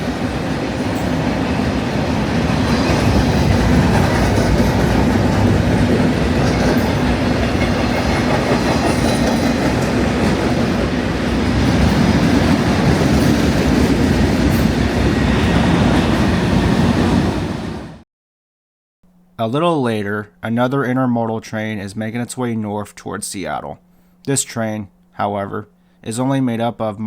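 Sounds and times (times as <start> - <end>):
freight train wheels on rails: 0.0 - 18.0.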